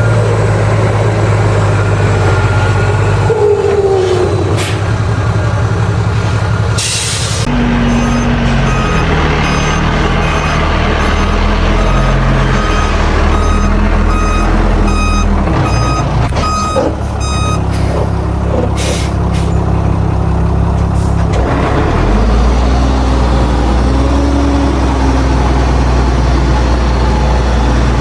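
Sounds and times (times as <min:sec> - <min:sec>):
diesel engine running: 0:00.0 - 0:28.0
reversing alarm beeps: 0:07.9 - 0:17.7.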